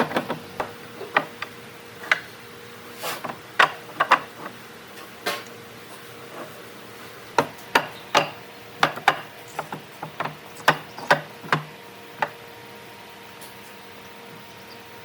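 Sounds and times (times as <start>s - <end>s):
wood pieces and tools knocking: 0.0s - 2.4s, 3.1s - 4.6s, 7.2s - 12.4s
faint steady hum: 0.0s - 15.0s.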